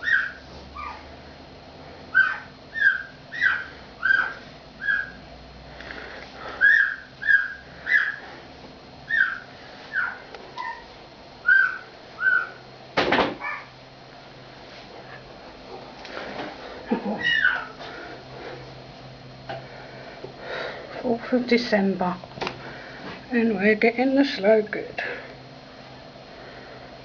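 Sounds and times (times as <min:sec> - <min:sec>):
dog whining: 0:00.0 - 0:01.1, 0:02.1 - 0:05.2, 0:06.6 - 0:08.2, 0:09.1 - 0:12.6, 0:13.4 - 0:13.8, 0:17.0 - 0:17.8.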